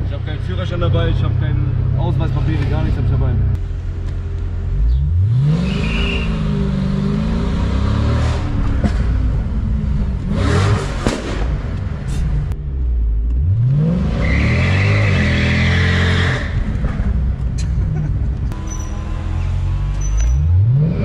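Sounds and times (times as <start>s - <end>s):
car engine accelerating hard: 4.6s - 12.6s.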